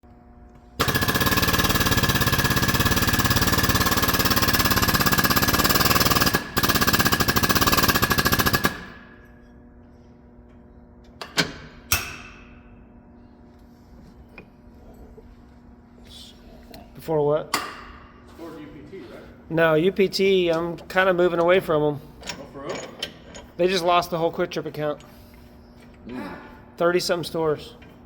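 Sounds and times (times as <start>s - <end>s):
pneumatic air tool hammering: 0.8s - 9.2s.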